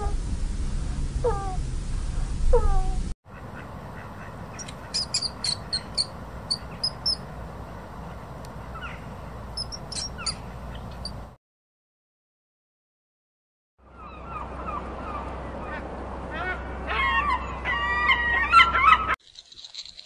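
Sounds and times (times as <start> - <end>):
falling calls: 3.3 - 11.3
guinea pig squealing: 4.6 - 7.2, 9.6 - 11.2
quick high chirps: 4.6 - 7.2, 9.6 - 11.2.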